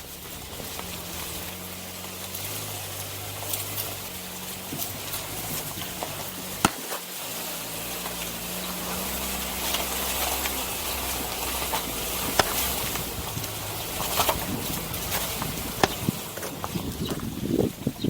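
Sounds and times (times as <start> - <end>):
meat sizzling over fire: 0.0 - 17.0
sharp pops: 6.0 - 7.0, 11.4 - 16.8.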